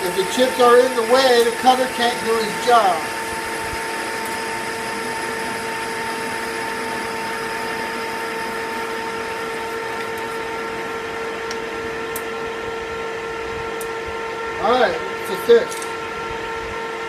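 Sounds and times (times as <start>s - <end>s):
metal lathe whining: 0.0s - 12.0s.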